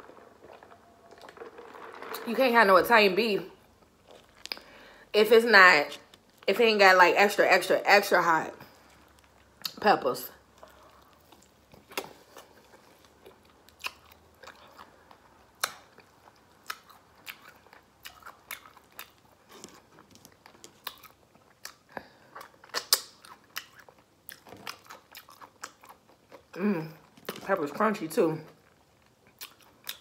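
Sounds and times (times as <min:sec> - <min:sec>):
person chewing crunchy food: 0:00.0 - 0:02.1, 0:03.8 - 0:05.0, 0:10.4 - 0:27.4, 0:28.6 - 0:30.0.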